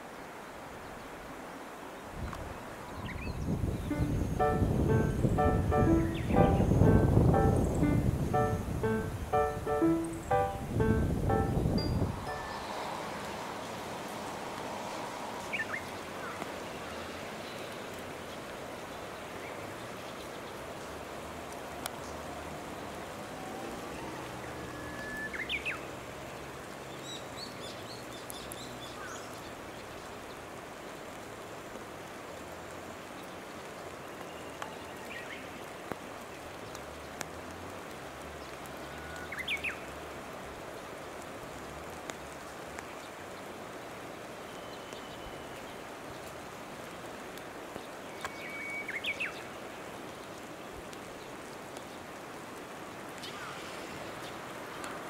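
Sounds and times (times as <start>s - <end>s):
steady rushing hiss: 3.6s - 16.5s.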